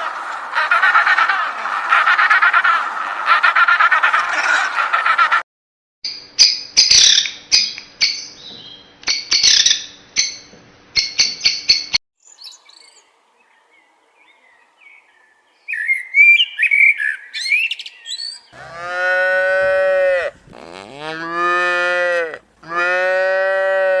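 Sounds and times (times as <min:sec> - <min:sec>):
clattering animal calls: 0:00.0 - 0:05.4
cattle mooing: 0:18.6 - 0:24.0.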